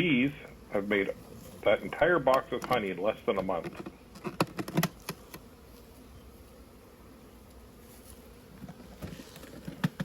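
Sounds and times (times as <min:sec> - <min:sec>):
bees buzzing: 0:00.0 - 0:10.0
sharp clicks and knocks: 0:02.3 - 0:05.4, 0:08.6 - 0:10.0.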